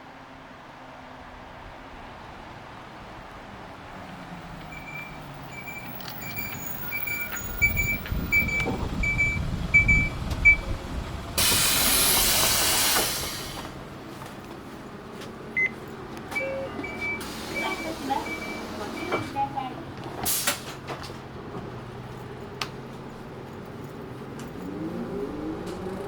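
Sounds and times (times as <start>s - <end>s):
bus rumbling and knocking: 0.0s - 26.0s
compressed air hiss: 11.4s - 13.7s, 20.3s - 20.7s.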